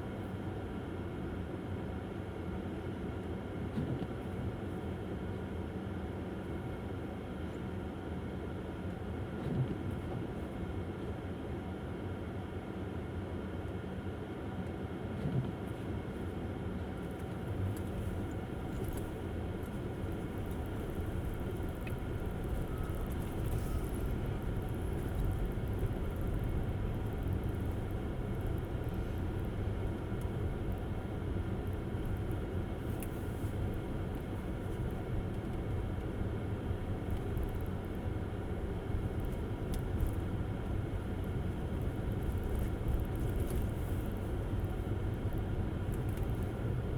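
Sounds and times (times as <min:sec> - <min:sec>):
tyre and road noise rumble: 0:17.3 - 0:46.9.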